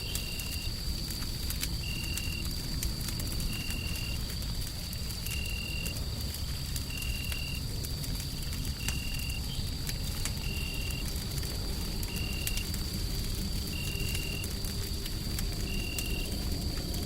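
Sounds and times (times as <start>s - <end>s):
constant high whine: 0.0s - 17.0s
wood fire crackling: 0.0s - 17.0s.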